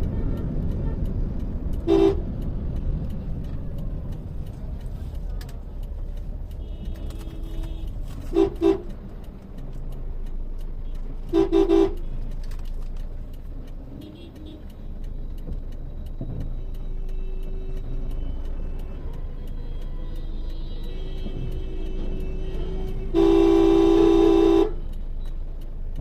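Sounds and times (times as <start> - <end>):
car horn toots: 0.0 - 2.4, 6.5 - 9.0, 11.2 - 12.2, 21.0 - 24.8
road and engine rumble: 0.0 - 26.0.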